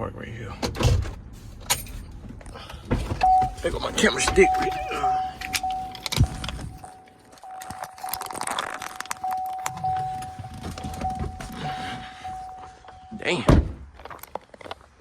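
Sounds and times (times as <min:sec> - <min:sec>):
keys jangling and clicking: 0:04.3 - 0:11.6
high electronic tone: 0:04.3 - 0:13.2.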